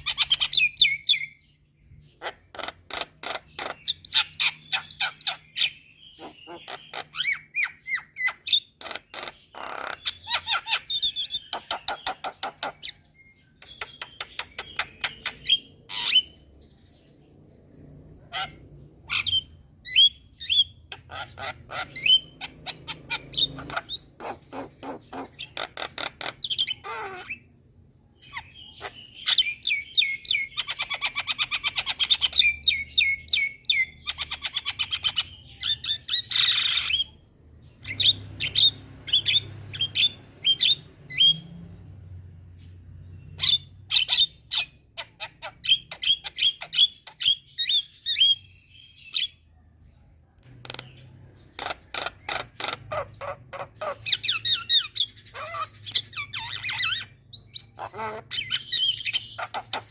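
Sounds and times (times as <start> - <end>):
mynas chattering and squawking: 2.1 - 13.0, 18.1 - 27.6, 50.5 - 59.9.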